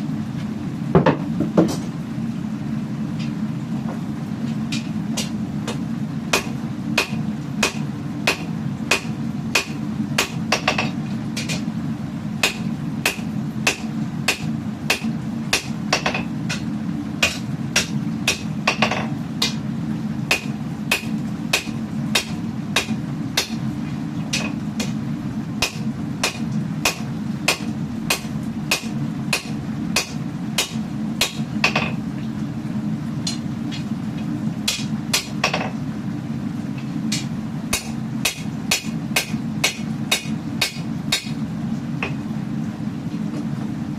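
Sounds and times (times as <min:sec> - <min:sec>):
steady low hum: 0:00.0 - 0:43.9
hammer striking steel on anvil: 0:17.2 - 0:19.6, 0:25.6 - 0:32.0, 0:37.1 - 0:41.4.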